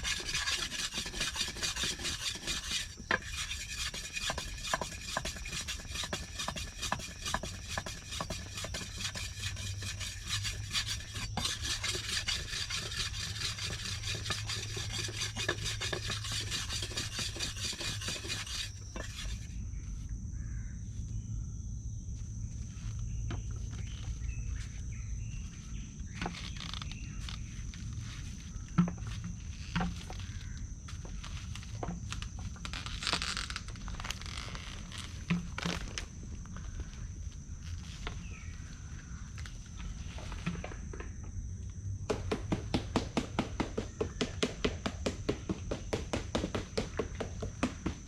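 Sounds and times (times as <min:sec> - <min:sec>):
fast sharp knocks: 0:00.0 - 0:19.3, 0:42.1 - 0:48.0
insect drone with chirps: 0:00.0 - 0:48.0
footstep-like crunches and knocks: 0:42.1 - 0:48.0.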